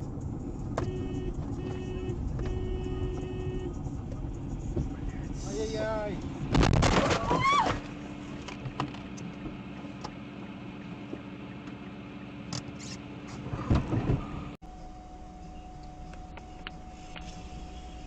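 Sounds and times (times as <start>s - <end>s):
car cabin hum: 0.0s - 18.0s
higher steady hum: 14.4s - 18.0s.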